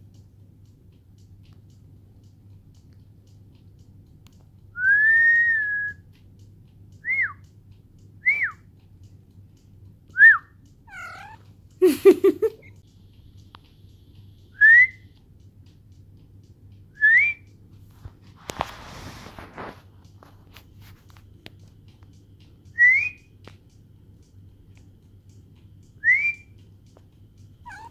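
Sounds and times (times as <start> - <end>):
person whistling: 4.8 - 6.0, 7.0 - 7.4, 8.2 - 8.6, 10.2 - 10.5, 14.6 - 15.0, 17.0 - 17.5, 22.8 - 23.2, 26.0 - 26.6
cat call: 10.9 - 11.4, 27.6 - 27.9.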